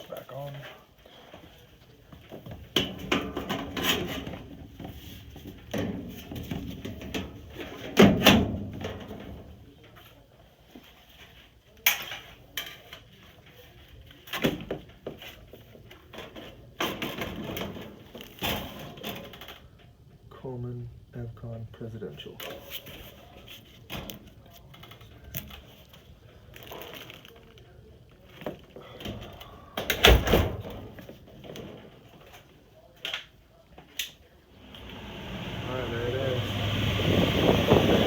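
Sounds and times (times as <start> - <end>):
sheet metal doors knocking and clattering: 2.4 - 9.5, 16.2 - 19.4.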